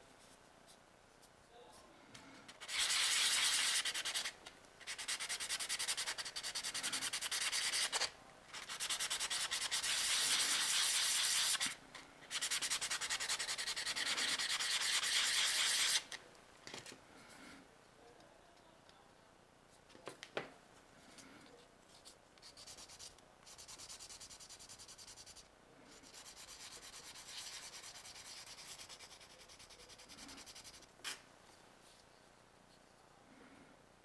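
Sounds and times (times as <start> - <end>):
sanding plastic part: 2.6 - 16.0.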